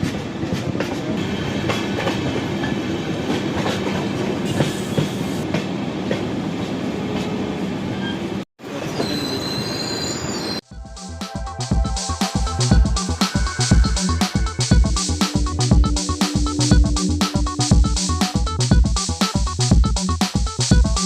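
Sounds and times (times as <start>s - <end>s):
train rumbling on rails: 0.0s - 10.6s
steel wheel squeal: 7.9s - 10.7s.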